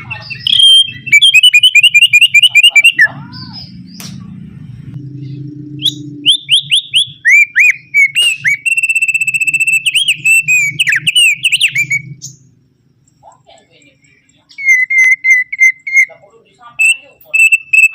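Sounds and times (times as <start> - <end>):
bird trill: 0.0 - 4.0, 5.0 - 17.9
bird singing whistled notes: 0.1 - 3.9, 5.2 - 12.5, 14.0 - 17.9
low hum: 3.0 - 13.3.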